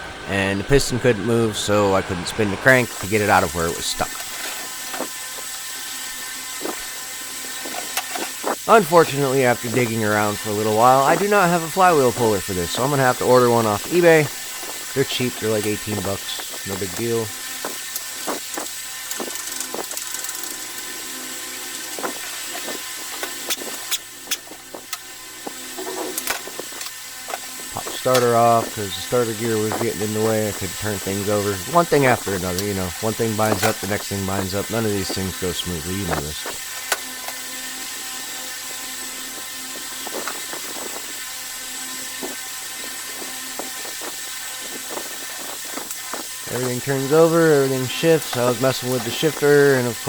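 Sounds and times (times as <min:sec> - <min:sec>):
steady hiss: 0:00.0 - 0:50.0
hand tools clicking on metal: 0:09.2 - 0:20.8, 0:21.9 - 0:37.4.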